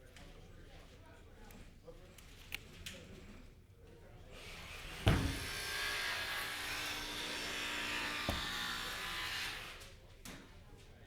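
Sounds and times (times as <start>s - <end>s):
electric jigsaw running: 5.3s - 9.8s.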